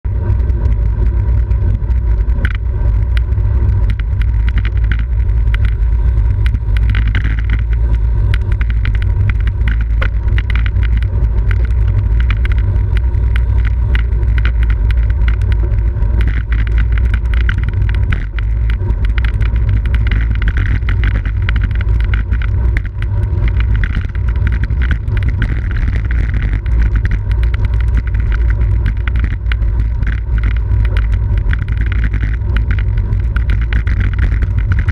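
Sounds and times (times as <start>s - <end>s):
wind buffeting microphone: 0.0s - 34.9s
bicycle clicks and rattles: 0.1s - 34.9s.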